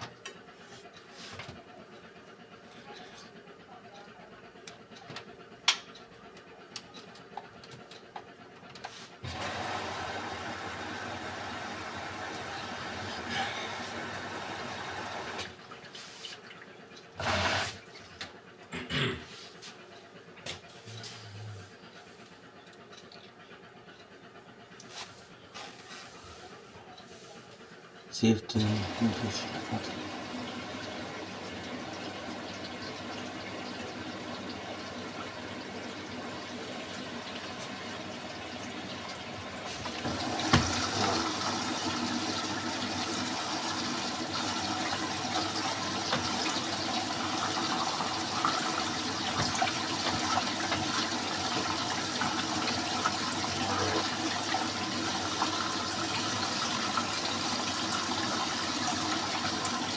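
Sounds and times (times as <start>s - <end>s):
washing machine filling with water: 9.1s - 18.8s, 28.1s - 59.9s.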